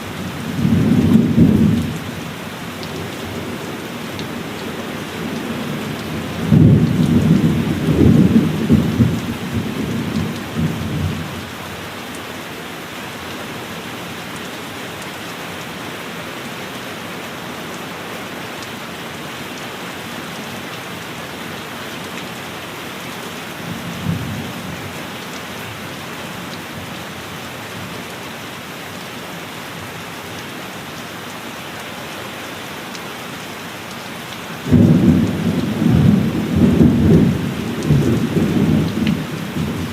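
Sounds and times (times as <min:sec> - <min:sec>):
heavy rain: 0:00.0 - 0:39.9
thunder rumbling: 0:34.7 - 0:39.9.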